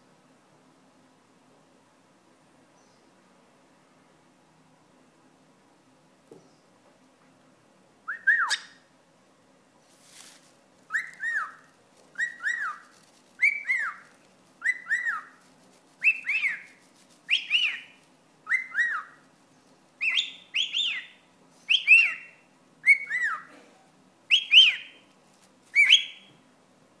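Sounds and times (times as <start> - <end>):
cockatiel wolf-whistling: 8.1 - 8.8, 10.9 - 11.6, 12.2 - 15.4, 16.0 - 16.7, 17.3 - 19.2, 20.0 - 23.5, 24.3 - 25.0, 25.7 - 26.4.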